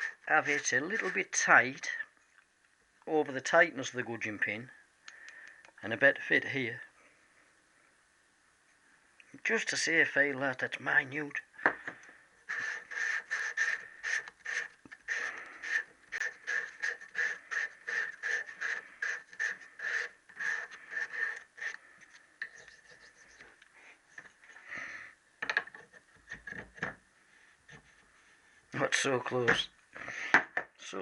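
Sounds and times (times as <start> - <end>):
hand reamer squeaky scraping: 0.0 - 2.0, 12.5 - 21.8, 22.4 - 23.6.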